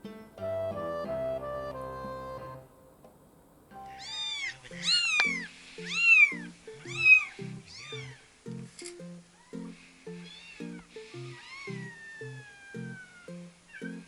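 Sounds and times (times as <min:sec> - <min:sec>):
soft background music: 0:00.0 - 0:02.9, 0:03.7 - 0:14.0
kitten mewing: 0:03.9 - 0:08.3, 0:10.2 - 0:14.0.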